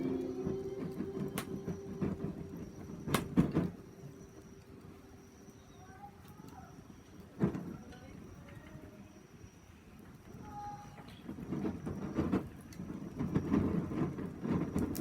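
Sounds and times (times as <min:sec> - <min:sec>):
faint bird chirps: 0:05.0 - 0:09.8.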